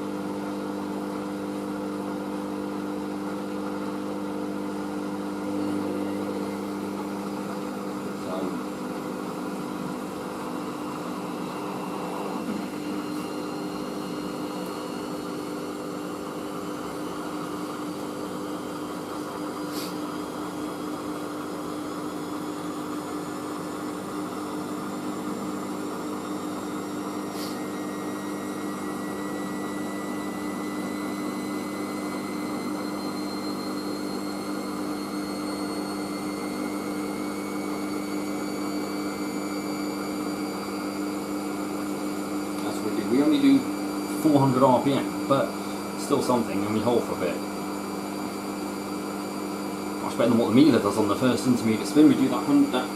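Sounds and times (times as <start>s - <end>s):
washing machine spinning: 0.0s - 52.9s.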